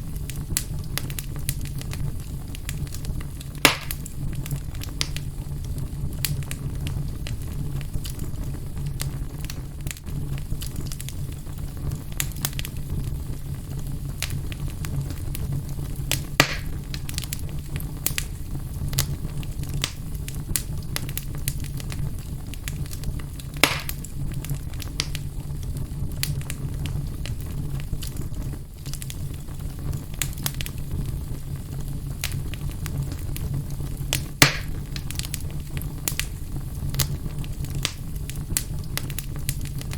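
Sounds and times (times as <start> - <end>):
sharp pops of fire: 0.0 - 39.9
wood fire crackling: 0.0 - 39.9.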